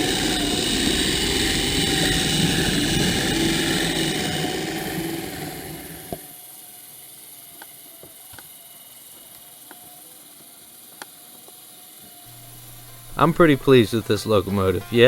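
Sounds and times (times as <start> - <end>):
model locomotive geared drive: 0.0 - 15.0
faint hiss: 12.3 - 15.0.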